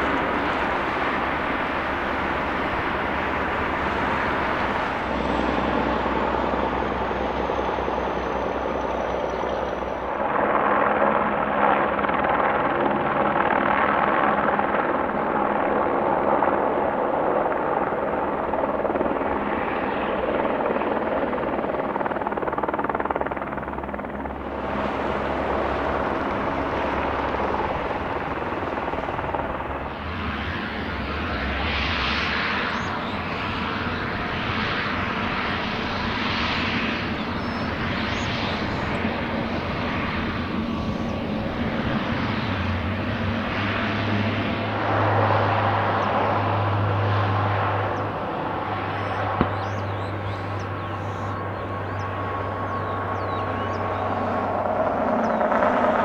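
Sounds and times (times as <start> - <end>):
aircraft engine rushing: 0.0 - 56.0.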